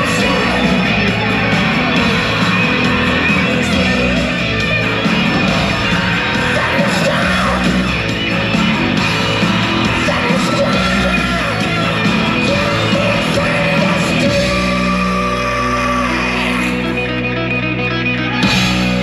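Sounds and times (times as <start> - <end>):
sung and yelled vocals: 0.0 - 17.4
loud rock music: 0.0 - 19.0.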